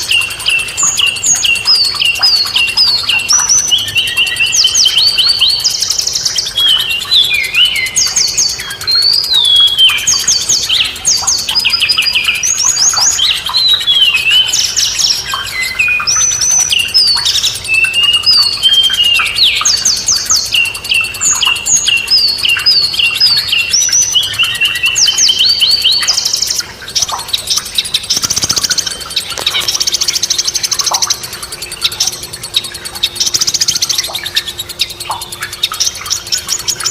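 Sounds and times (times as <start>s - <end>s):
songbirds singing: 0.0s - 36.9s.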